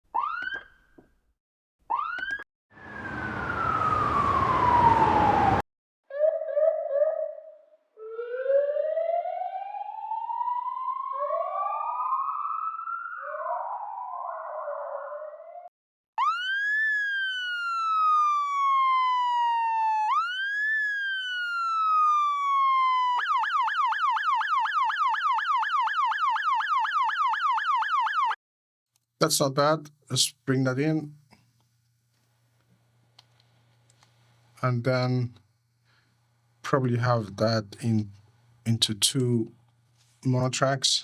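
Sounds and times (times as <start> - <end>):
police siren wailing: 0.2 - 0.7, 1.9 - 5.6, 8.0 - 15.3, 16.2 - 28.4
police siren yelp: 0.2 - 0.7, 1.9 - 15.6, 16.2 - 28.4.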